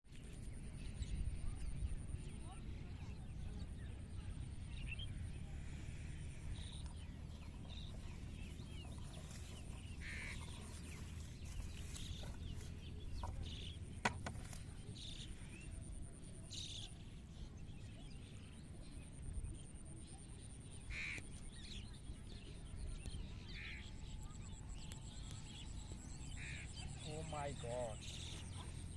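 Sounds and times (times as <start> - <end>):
low steady rumble: 0.2 - 28.9
short bird calls: 9.9 - 11.0, 20.9 - 21.3, 26.3 - 28.8.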